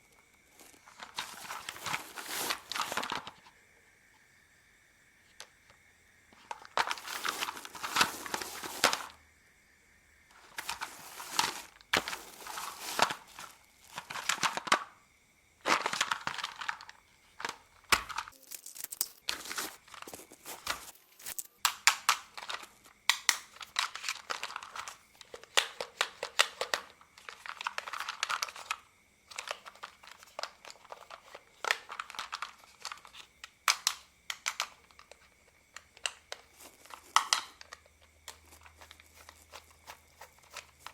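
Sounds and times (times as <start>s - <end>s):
plastic crinkling: 0.5s - 3.4s, 6.4s - 9.2s, 10.4s - 14.9s, 15.6s - 40.9s
plastic toy parts clicking: 16.4s - 19.4s, 21.2s - 40.9s.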